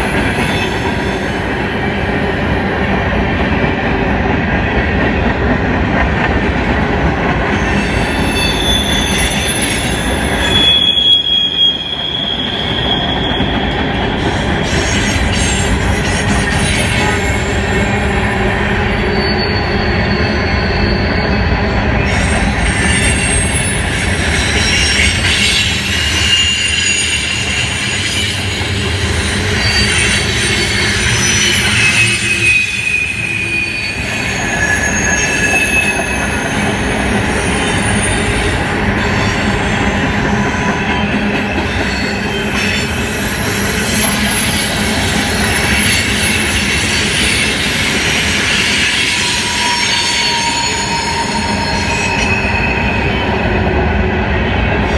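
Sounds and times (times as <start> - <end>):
train wheels rumbling on rails: 0.0 - 54.9
wheel flange squeal: 7.6 - 53.5.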